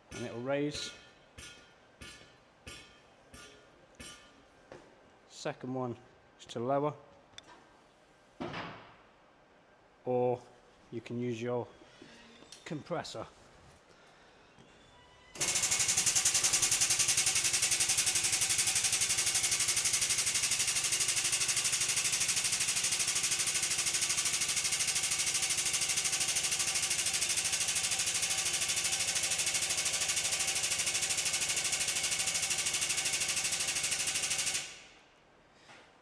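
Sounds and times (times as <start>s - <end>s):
pneumatic pump pulsing hiss: 15.4s - 34.8s.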